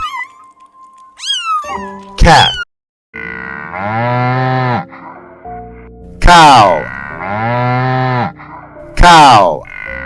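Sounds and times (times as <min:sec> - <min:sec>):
cow mooing: 0:03.2 - 0:05.3, 0:06.6 - 0:08.5.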